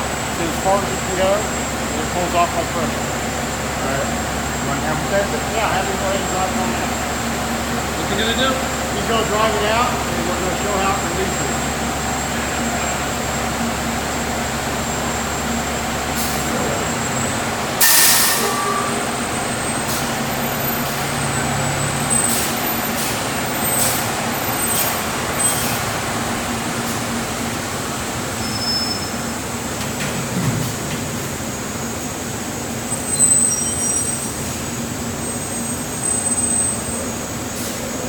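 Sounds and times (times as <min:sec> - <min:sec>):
fire truck engine running: 0:00.0 - 0:38.0
air brakes hissing: 0:15.0 - 0:26.1, 0:28.3 - 0:38.0.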